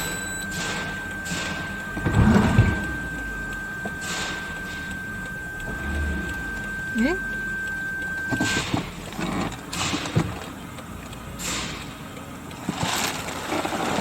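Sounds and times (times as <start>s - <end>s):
steady high tone: 0.0s - 9.8s
heavy thuds: 0.0s - 10.5s
car engine idling: 0.0s - 14.0s.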